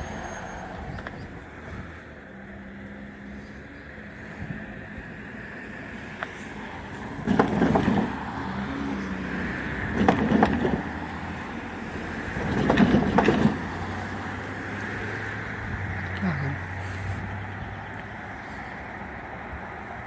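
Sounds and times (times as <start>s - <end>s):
train wheels clacking over rail joints: 7.1s - 8.2s, 9.8s - 11.2s, 12.3s - 13.8s.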